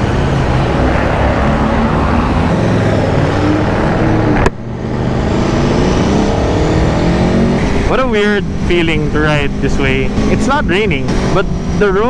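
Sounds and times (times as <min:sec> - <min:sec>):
wet road noise: 0:00.0 - 0:12.0
motorcycle engine running: 0:03.9 - 0:12.0.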